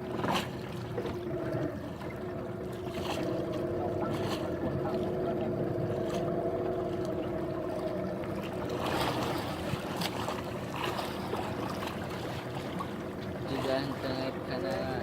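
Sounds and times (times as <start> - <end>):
boat engine humming: 0.0 - 15.0
water noise: 0.0 - 15.0
wind: 0.0 - 15.0.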